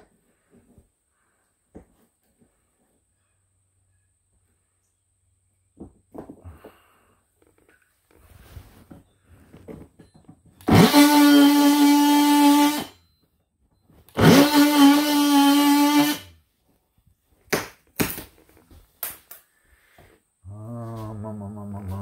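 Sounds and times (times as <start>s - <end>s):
power drill whining: 10.6s - 13.1s, 14.0s - 16.4s.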